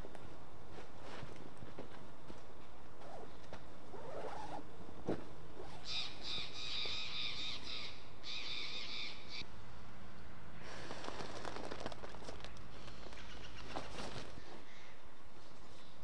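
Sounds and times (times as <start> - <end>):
bird's harsh raspy calls: 5.7 - 9.4, 12.8 - 15.0
crackling rustles: 10.6 - 15.8.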